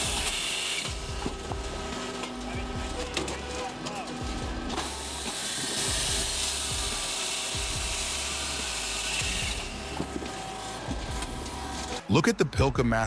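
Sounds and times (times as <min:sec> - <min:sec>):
saw cutting through log: 0:00.0 - 0:12.1.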